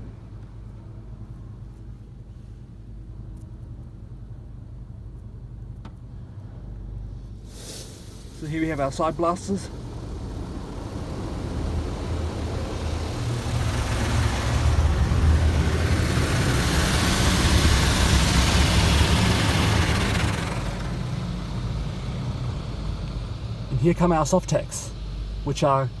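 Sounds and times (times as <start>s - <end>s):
steady low rumble: 0.0s - 26.0s
water jets spraying car: 7.2s - 26.0s.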